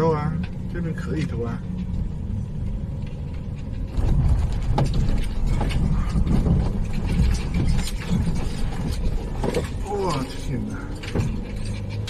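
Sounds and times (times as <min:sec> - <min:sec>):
vehicle rumble on rough road: 0:00.0 - 0:12.0
knocks and rattles of loose contents: 0:02.7 - 0:12.0.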